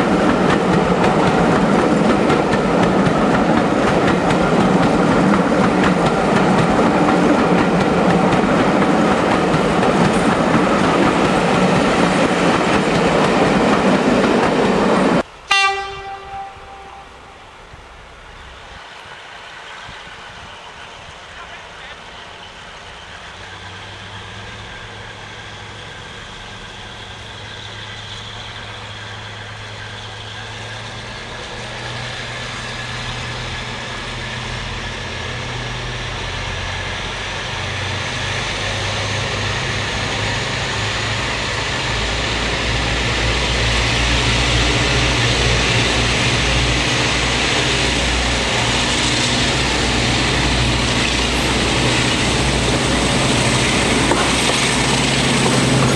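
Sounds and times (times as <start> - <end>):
diesel locomotive engine: 0.0 - 55.9.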